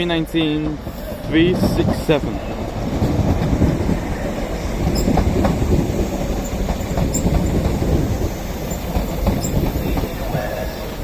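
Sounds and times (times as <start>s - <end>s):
train rumbling: 0.0s - 11.0s
wheels clicking over rail joints: 4.8s - 10.3s.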